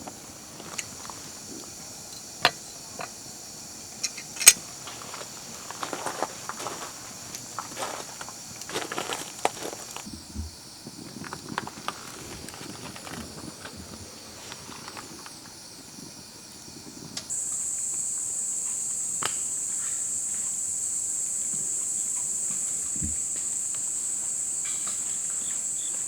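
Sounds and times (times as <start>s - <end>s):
high-pitched hiss: 0.0s - 26.0s
rustling: 3.8s - 15.4s.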